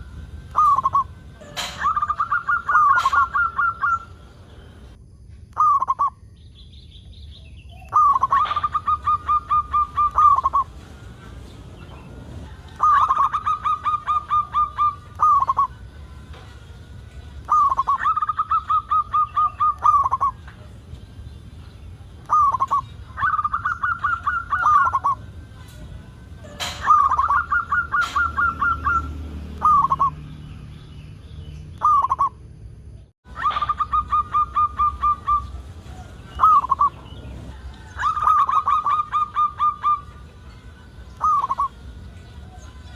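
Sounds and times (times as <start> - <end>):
dove cooing: 0.0 - 4.2, 7.9 - 16.6, 17.2 - 20.8, 22.0 - 25.7, 26.4 - 30.2, 33.3 - 40.2, 41.2 - 42.9.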